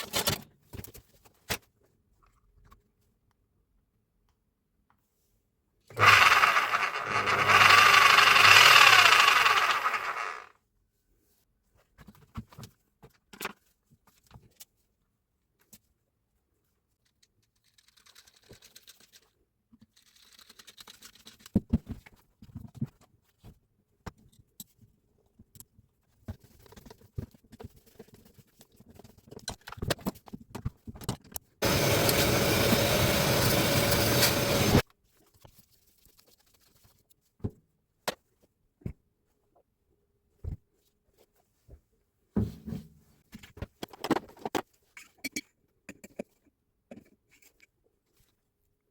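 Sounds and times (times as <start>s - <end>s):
loud steady machine noise: 6.0s - 10.4s, 31.6s - 34.8s.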